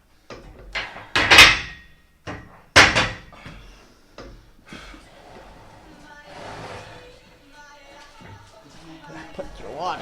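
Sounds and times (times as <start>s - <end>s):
loud metal clanks: 0.7s - 3.3s.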